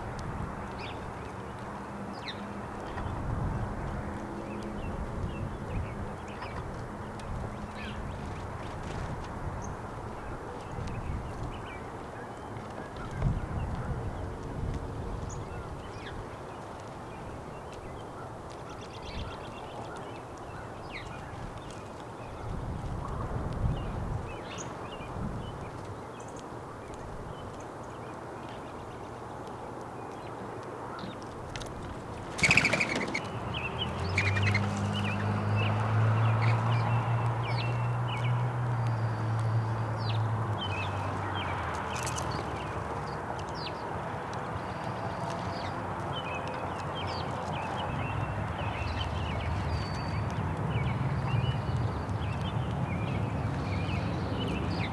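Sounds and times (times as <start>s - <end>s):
wind buffeting microphone: 0.0s - 29.2s
birds chirping: 0.0s - 54.9s
outdoor background noise: 0.0s - 54.9s.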